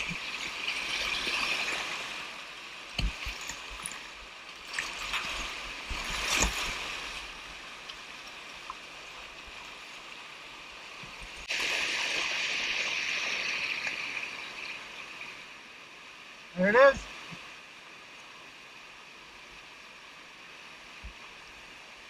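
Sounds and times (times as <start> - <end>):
rushing whitewater: 0.0 - 22.0
sharp knocks and splashes: 2.9 - 7.3.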